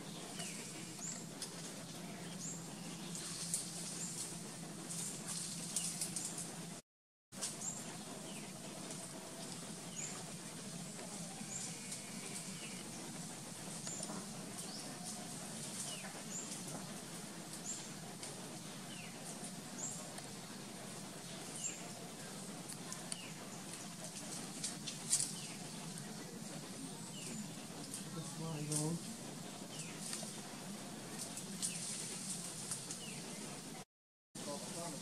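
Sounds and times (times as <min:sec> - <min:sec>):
low steady hum: 0:00.0 - 0:06.8.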